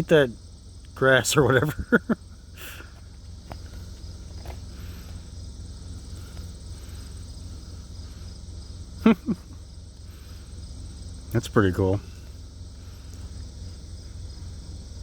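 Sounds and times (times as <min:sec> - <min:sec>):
crickets chirping: 0:00.0 - 0:15.0
low steady rumble: 0:00.0 - 0:15.0.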